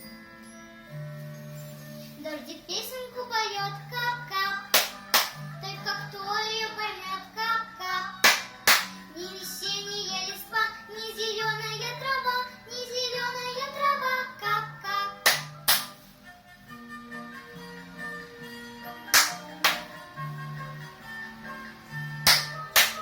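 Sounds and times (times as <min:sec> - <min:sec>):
girl singing: 0:02.2 - 0:08.5, 0:09.1 - 0:15.6
hand claps: 0:04.7 - 0:05.4, 0:08.2 - 0:09.0, 0:15.2 - 0:16.0, 0:19.1 - 0:20.0, 0:22.2 - 0:23.0
instrumental accompaniment: 0:15.2 - 0:23.0.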